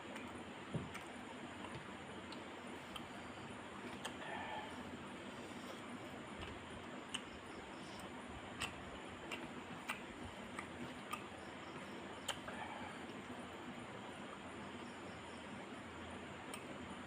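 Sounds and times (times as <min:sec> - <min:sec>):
sharp clicks and smacks: 0:00.1 - 0:03.1, 0:08.0 - 0:11.3
person chewing: 0:01.6 - 0:03.1, 0:03.8 - 0:13.3.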